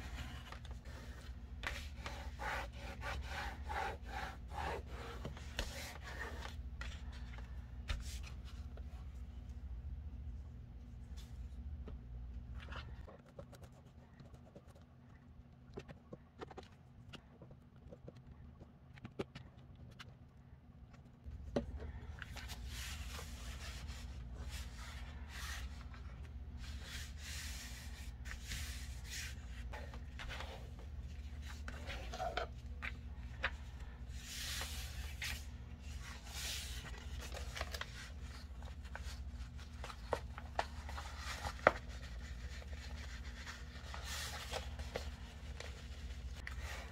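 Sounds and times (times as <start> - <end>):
paper rustling and scraping: 0.0 - 2.8, 21.9 - 46.9
low electrical hum: 0.0 - 46.9.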